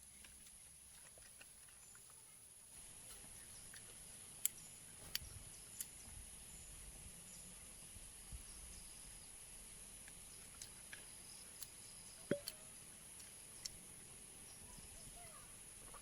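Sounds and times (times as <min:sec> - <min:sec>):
sharp light clicks: 0:03.0 - 0:06.0, 0:10.0 - 0:14.6.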